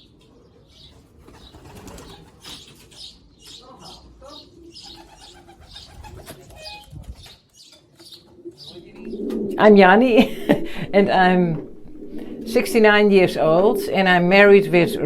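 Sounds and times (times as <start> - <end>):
pigeons cooing: 0.0 - 15.0
knocks of birds moving: 0.1 - 9.7.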